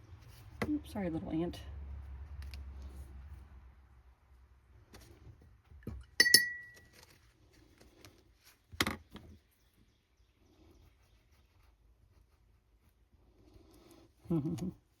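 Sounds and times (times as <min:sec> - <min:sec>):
glass clinking: 0:06.2 - 0:06.8.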